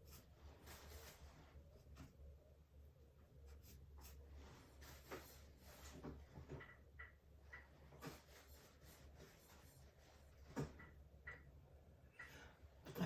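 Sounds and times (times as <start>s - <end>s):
paintbrush strokes on canvas: 0.0s - 2.2s, 3.5s - 6.3s, 7.9s - 10.5s.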